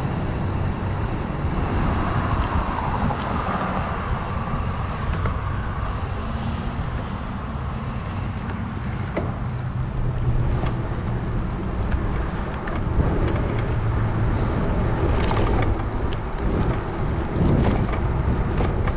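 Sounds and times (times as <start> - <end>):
bike tires rumbling on trail: 0.0 - 18.9
small clicks and ticks: 0.1 - 11.1.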